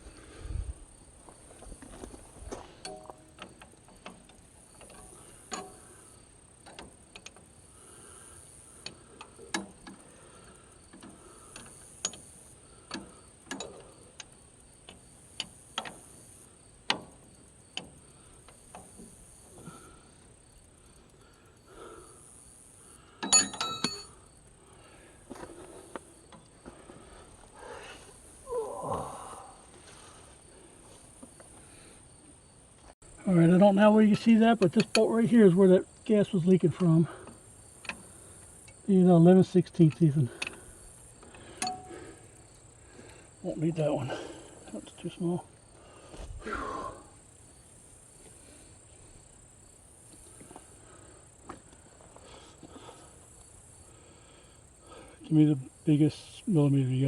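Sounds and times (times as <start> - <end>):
insects chirring: 0.0 - 57.0
metal tools clattering: 23.2 - 24.1
wrenches clicking on metal: 23.2 - 24.1, 34.2 - 35.3.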